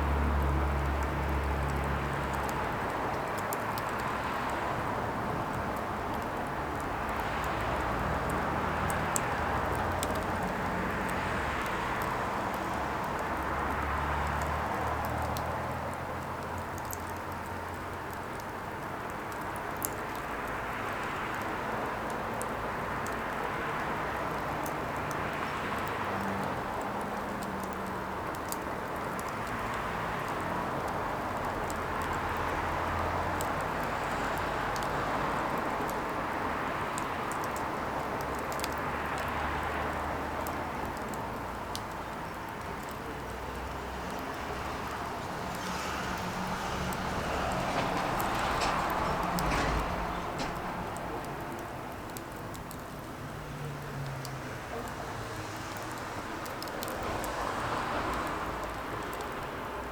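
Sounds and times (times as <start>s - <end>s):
rushing fire: 0.0s - 59.9s.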